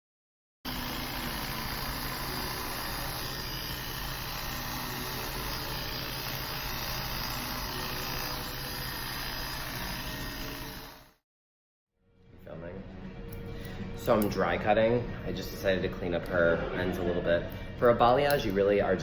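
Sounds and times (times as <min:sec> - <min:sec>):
low motor hum: 0:00.7 - 0:11.1
electric blower rushing: 0:00.7 - 0:11.2.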